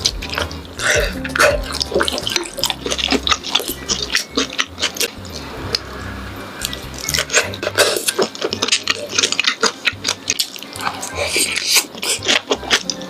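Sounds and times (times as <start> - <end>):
wet chewing and squishing: 0.0 - 6.0, 6.6 - 13.0
soft background music: 0.0 - 13.0
mouth smacks and clicks: 6.6 - 13.0.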